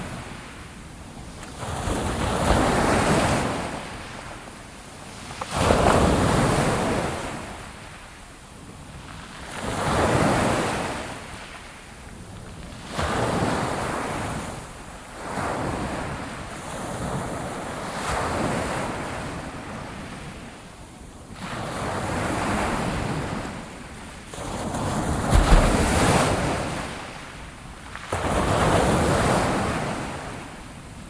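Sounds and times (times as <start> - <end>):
ocean waves breaking on shore: 25.0 - 27.2.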